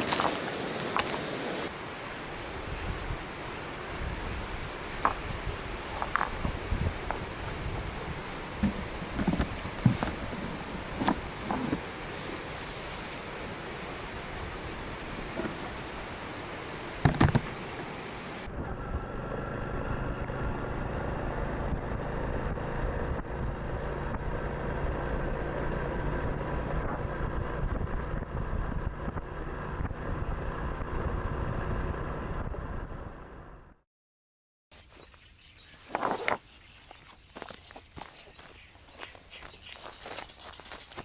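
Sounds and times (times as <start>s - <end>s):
wind and road noise: 0.0s - 33.8s, 34.8s - 41.0s
motorcycle engine running: 18.5s - 33.7s.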